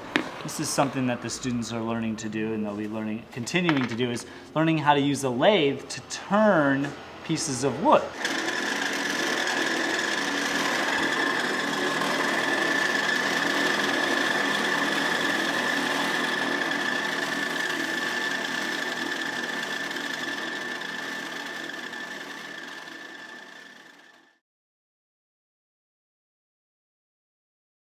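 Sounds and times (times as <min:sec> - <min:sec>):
wood lathe turning tool scraping: 0:05.6 - 0:24.4.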